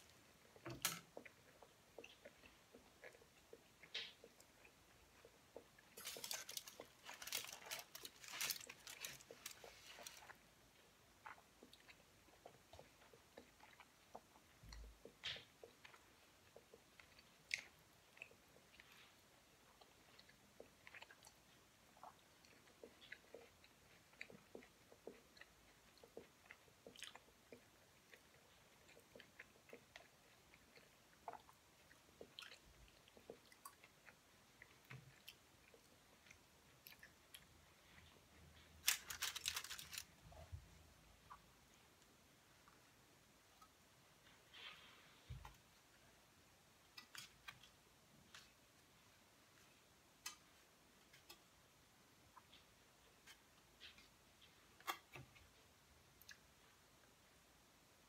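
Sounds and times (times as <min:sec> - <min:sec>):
chewing and biting food: 0:00.4 - 0:40.1
aluminium foil crackling: 0:06.0 - 0:10.2, 0:38.8 - 0:40.2.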